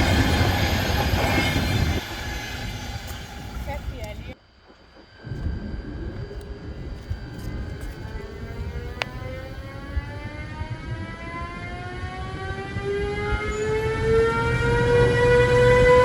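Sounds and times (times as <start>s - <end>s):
locomotive drive whining: 0.0s - 4.4s.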